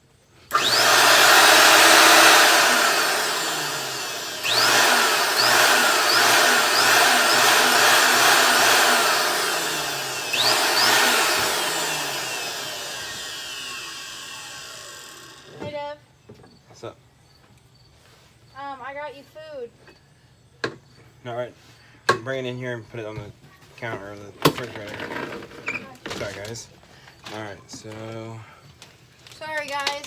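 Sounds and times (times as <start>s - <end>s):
vacuum cleaner motor whining: 0.5s - 15.7s.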